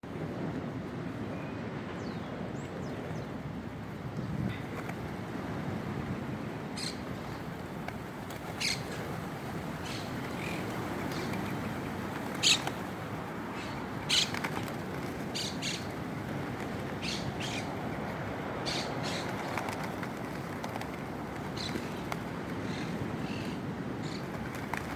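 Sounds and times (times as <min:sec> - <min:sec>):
outdoor rush: 0:00.0 - 0:24.9
wings fluttering: 0:04.5 - 0:05.5, 0:06.7 - 0:24.9
birds chirping: 0:06.6 - 0:24.9
sharp bird calls: 0:08.5 - 0:09.1, 0:09.8 - 0:12.8, 0:13.5 - 0:16.0, 0:17.0 - 0:17.8, 0:18.6 - 0:20.5.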